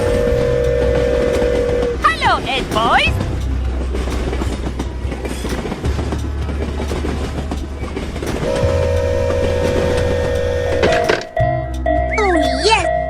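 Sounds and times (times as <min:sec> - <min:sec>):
train horn: 0:00.0 - 0:02.0, 0:08.4 - 0:11.4
train rumbling on track: 0:00.0 - 0:13.0.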